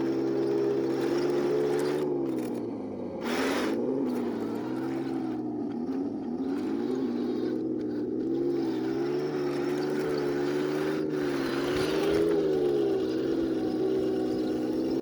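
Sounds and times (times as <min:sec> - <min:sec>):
model tank motor drone: 0:00.0 - 0:15.0.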